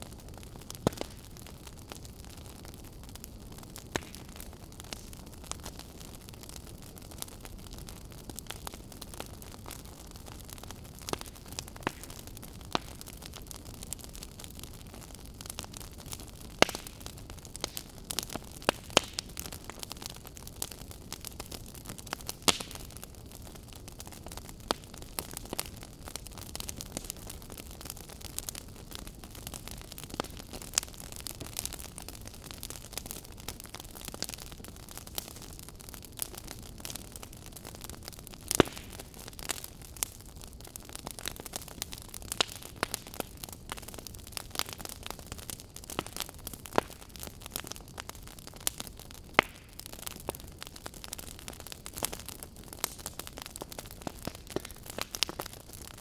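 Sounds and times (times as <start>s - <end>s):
wood fire crackling: 0.0s - 56.0s
firewood popping and snapping: 0.3s - 2.7s, 3.7s - 56.0s.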